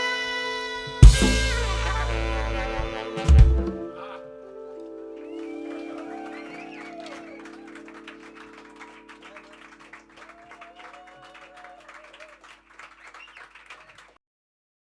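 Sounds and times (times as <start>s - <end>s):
band holding final chord: 1.0s - 4.0s
audience applause: 5.2s - 14.2s.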